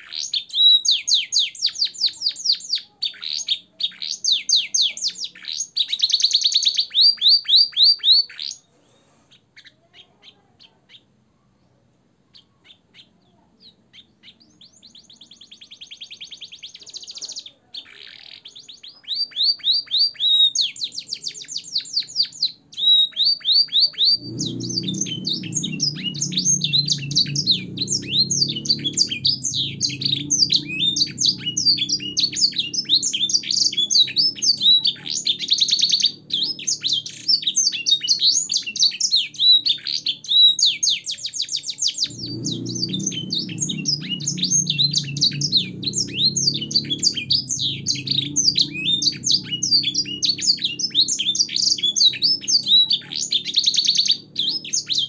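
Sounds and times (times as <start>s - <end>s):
canary singing chirps and trills: 0.0s - 55.0s
faint low rumble: 24.0s - 38.3s, 41.9s - 55.0s.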